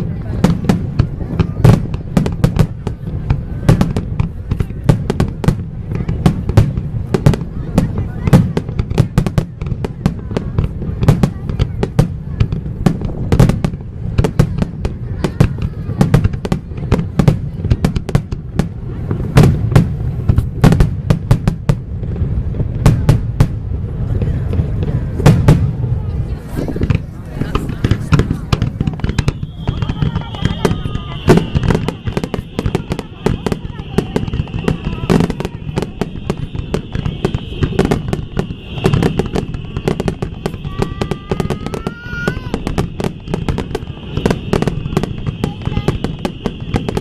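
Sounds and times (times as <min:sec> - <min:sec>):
fireworks bursting with bangs: 0:00.0 - 0:47.0
thin rising whistle: 0:29.0 - 0:31.6.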